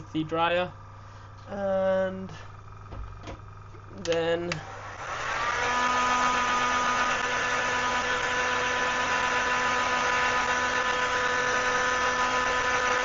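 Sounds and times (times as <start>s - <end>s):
handheld dryer running: 2.2s - 13.0s.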